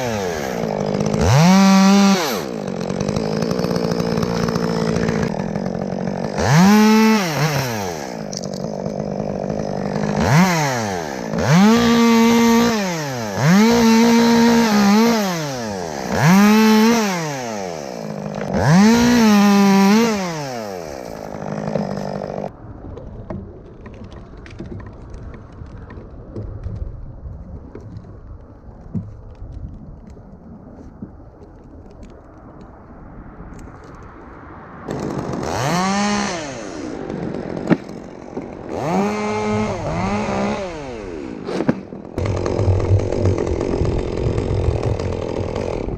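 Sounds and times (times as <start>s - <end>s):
chainsaw idling and revving: 0.0s - 22.5s, 34.9s - 45.9s.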